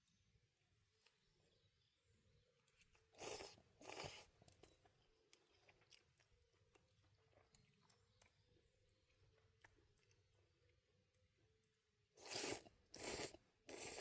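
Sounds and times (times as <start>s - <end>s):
faint chewing: 2.6s - 14.0s
person slurping noodles: 3.2s - 4.3s, 12.2s - 14.0s.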